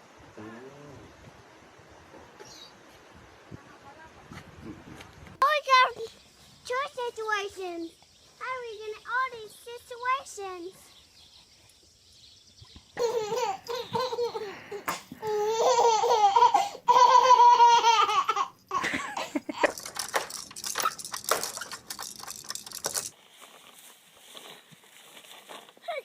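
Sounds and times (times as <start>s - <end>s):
baby laughing: 13.0s - 22.7s.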